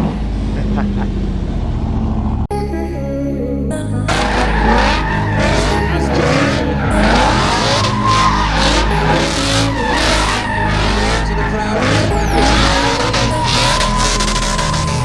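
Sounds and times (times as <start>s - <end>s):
car engine running: 4.1s - 15.0s
tyres squealing and skidding: 4.1s - 15.0s.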